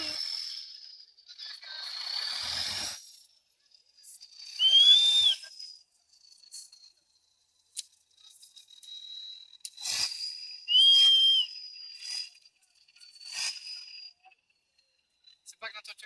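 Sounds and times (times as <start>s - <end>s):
high whistle notes: 4.5s - 5.6s, 9.0s - 12.3s.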